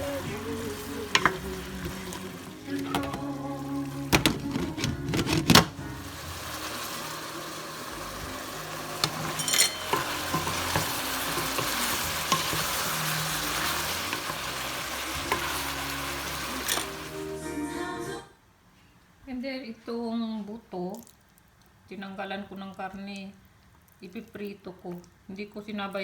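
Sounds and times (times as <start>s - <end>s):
cookware clanking: 0.0s - 3.4s, 4.1s - 5.8s, 8.8s - 17.1s
food sizzling in a frying pan: 0.0s - 17.7s.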